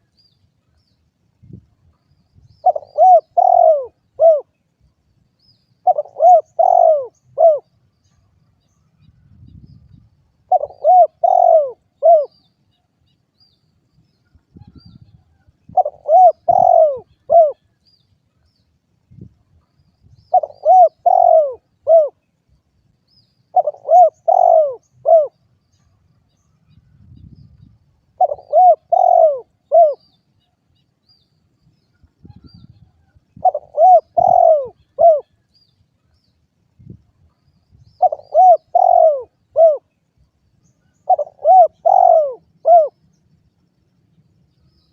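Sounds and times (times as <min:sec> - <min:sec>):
dove cooing: 0:02.6 - 0:04.6, 0:05.8 - 0:07.7, 0:10.4 - 0:12.4, 0:15.7 - 0:17.6, 0:20.3 - 0:22.2, 0:23.5 - 0:25.4, 0:28.2 - 0:30.1, 0:33.4 - 0:35.4, 0:38.0 - 0:39.9, 0:41.0 - 0:43.0.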